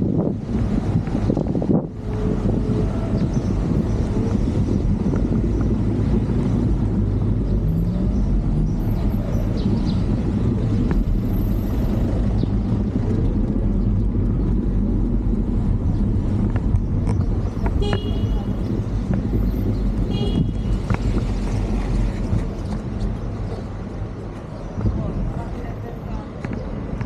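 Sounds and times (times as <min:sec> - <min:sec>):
vehicle engine rumbling: 0:00.0 - 0:27.0
wind noise on microphone: 0:00.0 - 0:27.0.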